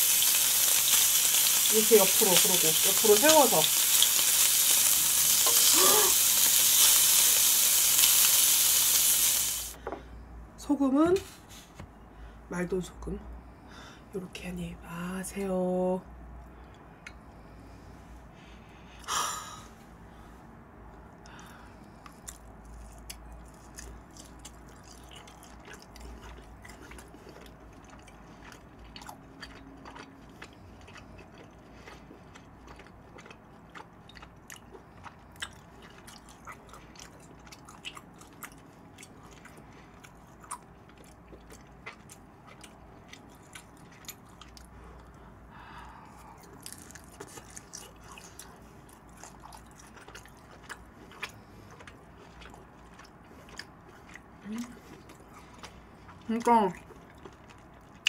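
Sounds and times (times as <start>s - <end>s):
person chewing meat: 0.0s - 1.7s, 3.7s - 9.5s, 20.9s - 58.0s.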